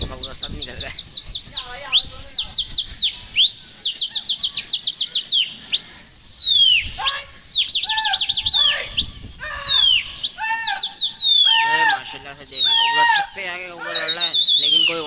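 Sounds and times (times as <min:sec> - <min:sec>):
small bird singing: 0:00.0 - 0:15.0.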